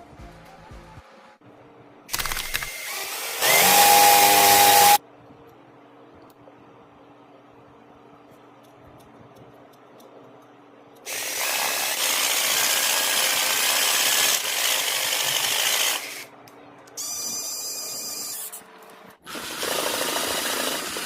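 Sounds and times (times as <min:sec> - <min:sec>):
power tool rasping: 0:11.1 - 0:16.3, 0:19.3 - 0:21.0.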